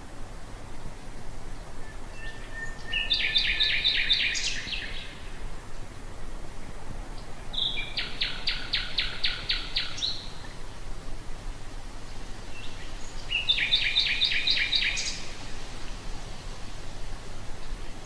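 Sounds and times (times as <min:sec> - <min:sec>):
nightingale singing: 0:01.8 - 0:05.3, 0:07.2 - 0:10.6, 0:12.5 - 0:15.4.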